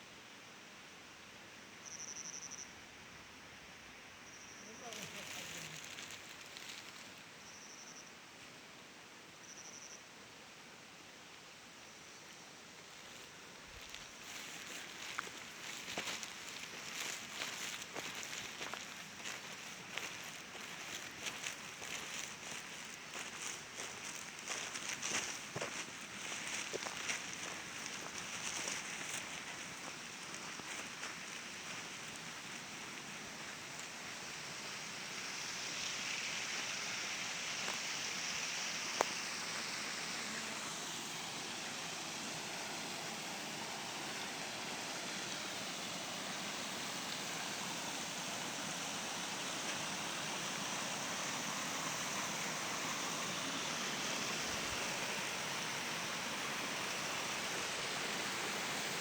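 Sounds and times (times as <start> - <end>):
flowing water rushing: 13.7 - 59.0.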